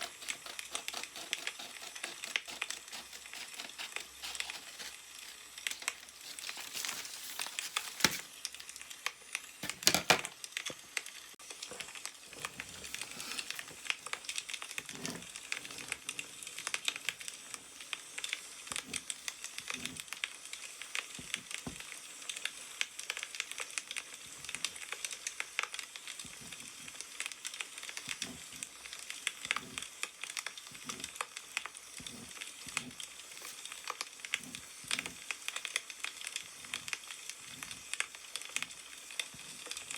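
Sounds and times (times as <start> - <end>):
newspaper rustling: 0.0 - 8.7
firewood crackling: 0.0 - 9.7.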